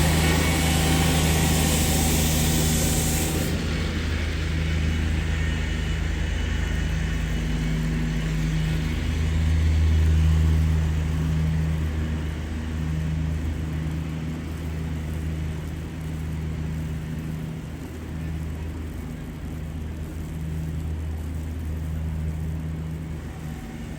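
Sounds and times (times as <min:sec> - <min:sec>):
road hiss: 0:00.0 - 0:08.9
vehicle engine humming: 0:00.0 - 0:13.7.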